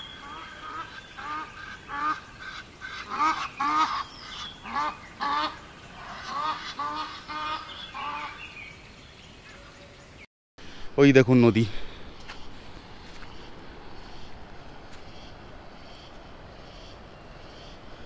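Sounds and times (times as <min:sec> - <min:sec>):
bird honking calls: 0:00.0 - 0:08.6.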